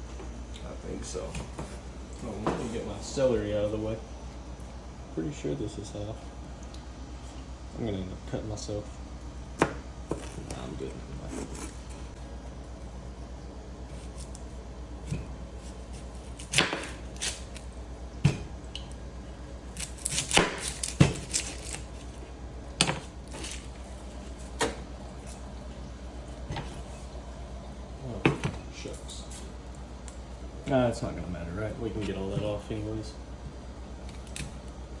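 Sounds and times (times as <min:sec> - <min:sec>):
knife chopping vegetables: 0:15.0 - 0:17.6, 0:19.8 - 0:21.8.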